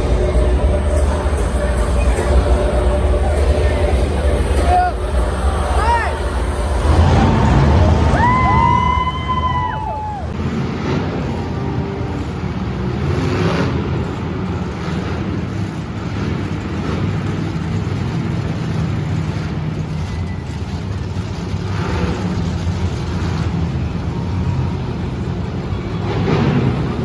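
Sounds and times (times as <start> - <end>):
crowd noise: 0.0 - 27.0
truck engines rumbling: 0.0 - 27.0.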